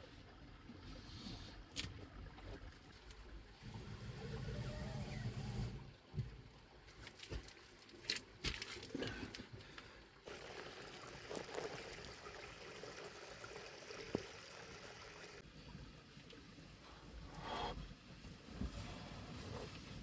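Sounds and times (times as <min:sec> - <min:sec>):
water trickling: 0:02.0 - 0:17.4.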